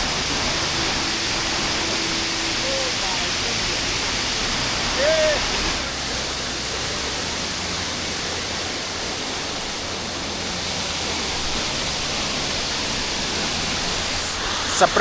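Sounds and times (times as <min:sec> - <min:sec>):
waterfall rushing: 0:00.0 - 0:15.0
wind buffeting microphone: 0:00.0 - 0:15.0.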